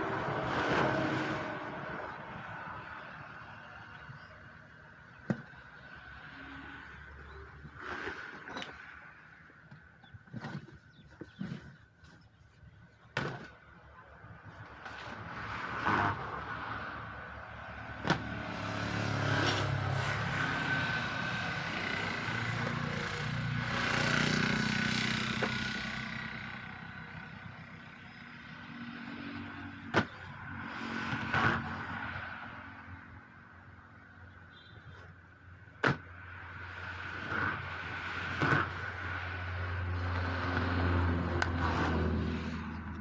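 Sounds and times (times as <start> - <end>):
vehicle passing by: 0.0 - 4.0, 15.2 - 33.2, 36.2 - 43.0.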